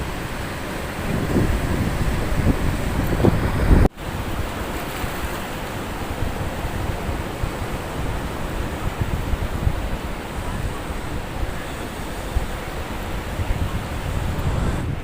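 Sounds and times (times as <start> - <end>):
ocean surf washing ashore: 0.0 - 15.0
wind buffeting microphone: 0.0 - 15.0.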